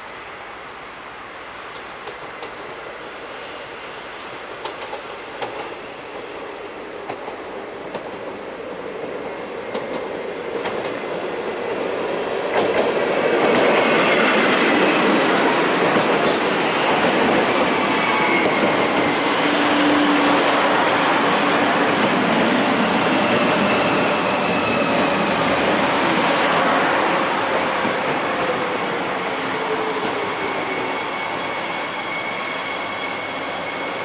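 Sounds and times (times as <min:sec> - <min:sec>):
tram running on rails: 0:00.0 - 0:34.0
wheel squeal: 0:30.2 - 0:34.0.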